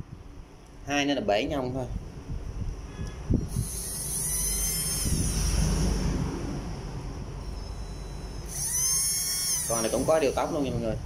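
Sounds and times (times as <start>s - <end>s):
drill motor whining: 3.4s - 6.1s, 7.4s - 10.8s.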